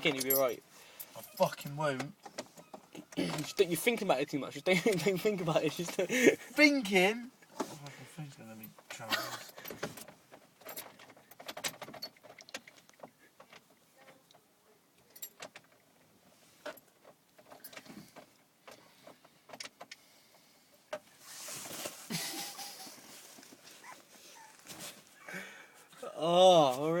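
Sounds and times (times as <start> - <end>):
car keys rattling in ignition: 0.0 - 2.3, 8.5 - 12.8.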